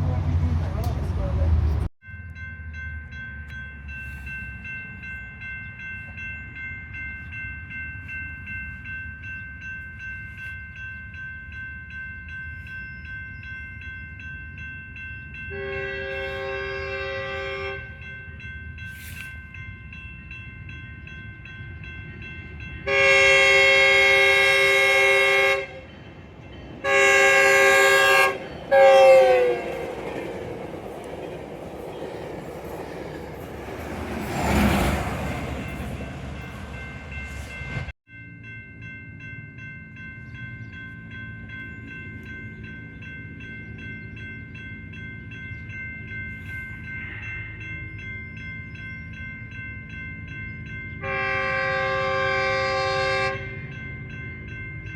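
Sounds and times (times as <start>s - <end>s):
passing train rumble: 0.0s - 54.9s
crossing bell ringing: 2.0s - 54.9s
locomotive air horn blasts: 15.5s - 18.0s, 22.9s - 25.9s, 26.8s - 29.9s, 51.0s - 53.7s.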